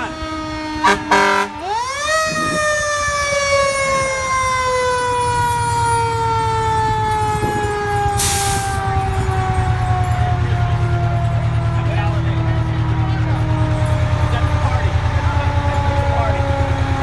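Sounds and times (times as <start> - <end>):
diesel engine rumbling: 0.0 - 17.0
fire engine siren wailing: 0.0 - 17.0
air hiss: 8.2 - 8.8.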